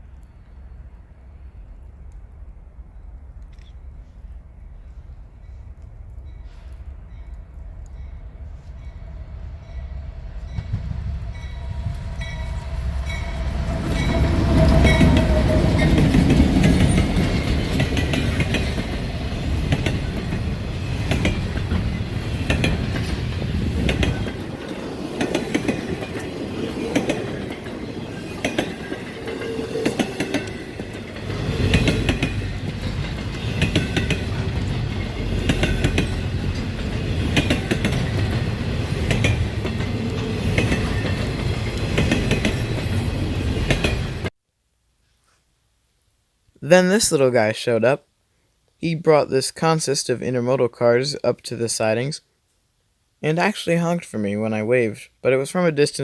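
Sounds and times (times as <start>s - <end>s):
freight train rumble: 4.0s - 44.3s
wheels clicking over rail joints: 13.7s - 44.3s.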